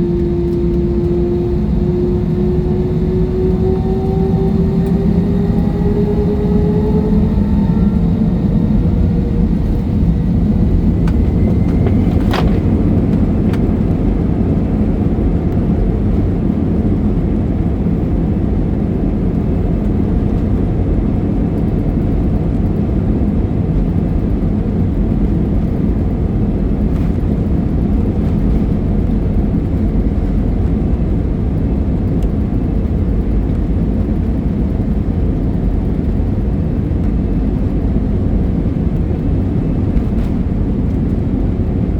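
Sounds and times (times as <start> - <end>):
rising whine: 0.0 - 16.2
jet airliner cabin noise: 0.0 - 41.9
click: 11.0 - 12.6.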